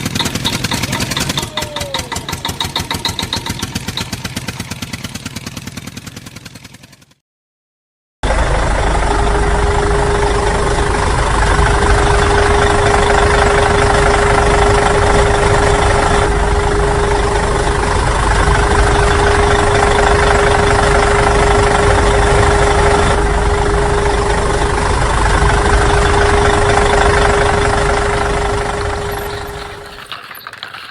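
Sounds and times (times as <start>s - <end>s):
motor humming: 0.0s - 5.2s, 27.8s - 30.9s.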